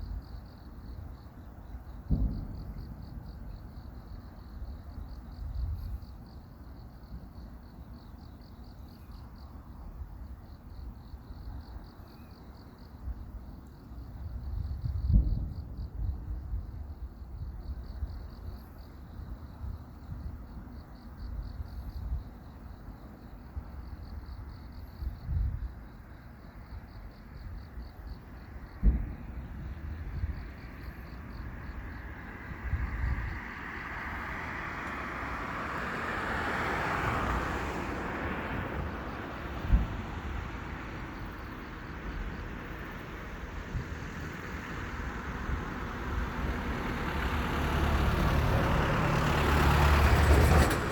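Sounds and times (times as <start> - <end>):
wind rumbling on microphone: 0.0 - 7.4, 14.0 - 22.6, 23.6 - 26.0, 26.9 - 50.9
road vehicle passing: 31.6 - 41.6, 42.6 - 50.9.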